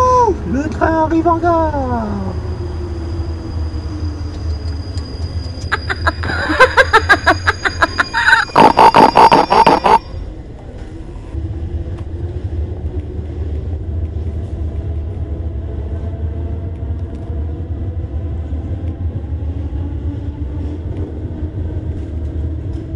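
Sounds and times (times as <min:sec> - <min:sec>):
train rumbling: 0:00.0 - 0:22.9.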